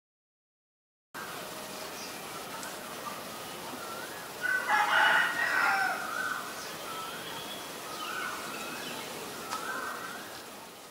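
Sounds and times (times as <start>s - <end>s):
loud rough bird call: 3.2s - 10.4s.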